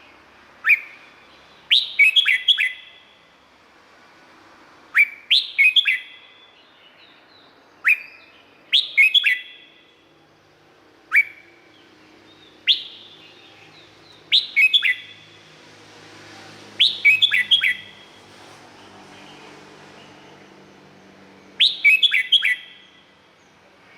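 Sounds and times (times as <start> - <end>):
bulbul whistled song: 0.6 - 3.2, 4.9 - 10.0, 11.1 - 15.4, 16.8 - 18.2, 21.5 - 23.1.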